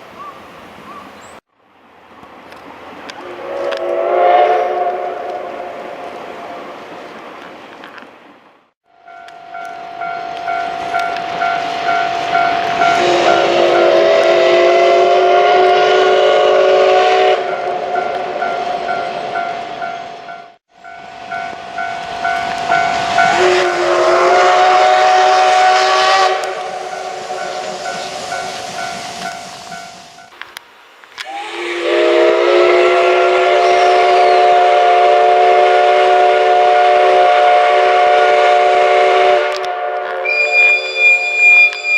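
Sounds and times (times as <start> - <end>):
steam locomotive whistle: 3.2 - 6.0, 9.6 - 19.5, 21.4 - 30.0, 31.2 - 41.9
steam hissing: 22.0 - 30.4, 31.2 - 41.9.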